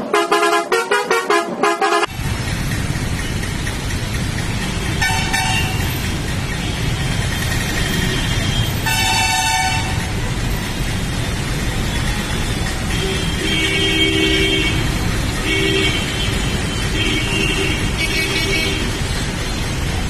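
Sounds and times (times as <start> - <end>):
horn short blasts: 0.0 - 2.1
rumbling vehicle noise: 0.0 - 20.0.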